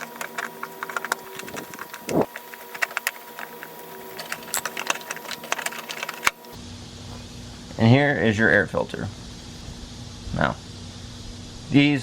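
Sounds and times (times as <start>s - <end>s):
screwdriver clicking on plastic: 0.0s - 6.6s.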